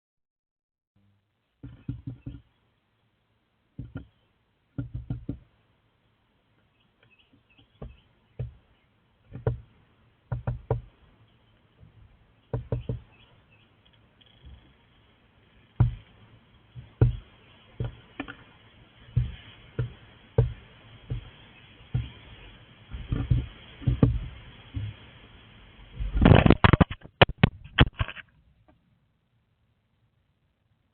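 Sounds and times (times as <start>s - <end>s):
knocks against bird box: 12.5s - 13.1s.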